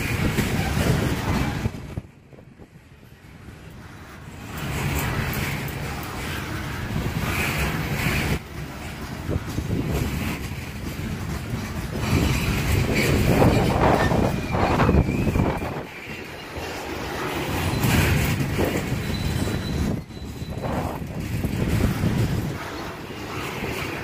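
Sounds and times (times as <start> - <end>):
freight train rumbling past: 0.0 - 24.0
high wheel squeal: 12.1 - 24.0.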